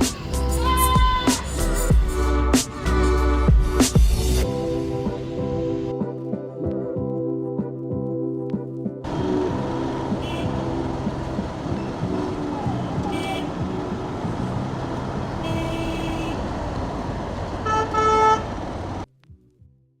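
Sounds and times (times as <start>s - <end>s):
busy road traffic: 0.0s - 5.9s, 9.0s - 19.1s
vehicle horns honking: 9.1s - 19.0s.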